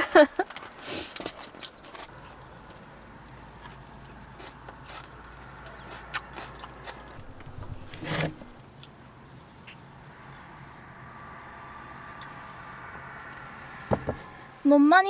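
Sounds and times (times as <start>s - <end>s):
chewing crispy food: 0.4s - 7.6s.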